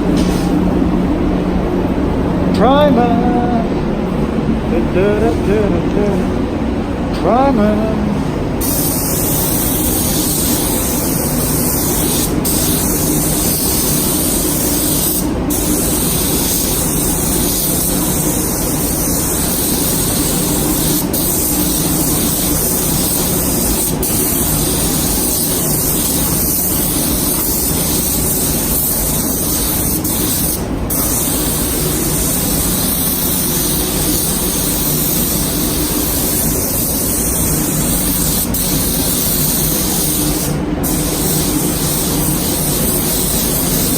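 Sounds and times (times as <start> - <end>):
spray gun hissing: 8.6 - 43.9.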